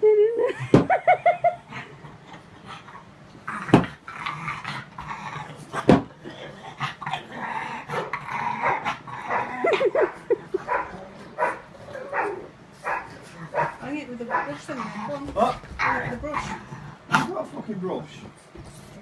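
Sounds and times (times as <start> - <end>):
dog whining: 3.6 - 13.8.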